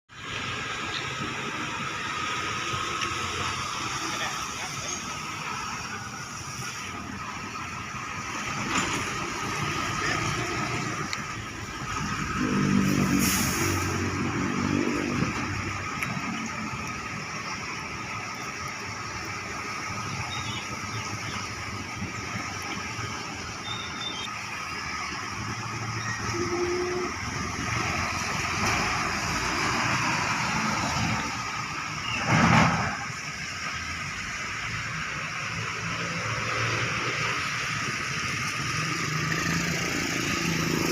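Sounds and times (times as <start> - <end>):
rain: 0.1 - 40.9
traffic on wet road: 0.1 - 40.9
vehicle engine passing close: 8.0 - 23.4, 24.6 - 34.2, 34.9 - 40.9
vehicle passing close: 8.2 - 17.3.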